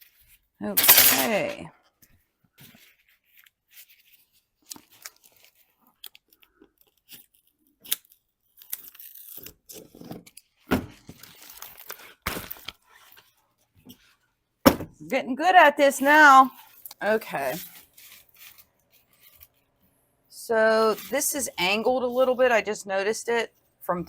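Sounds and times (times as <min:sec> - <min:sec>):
sheet crinkling and tearing: 0:02.7 - 0:13.4, 0:16.0 - 0:19.7.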